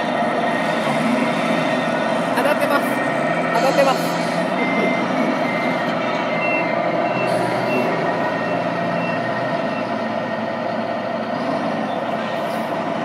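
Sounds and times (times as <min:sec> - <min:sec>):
engine-like hum: 0:00.0 - 0:13.0
reversing beeps: 0:03.6 - 0:10.9.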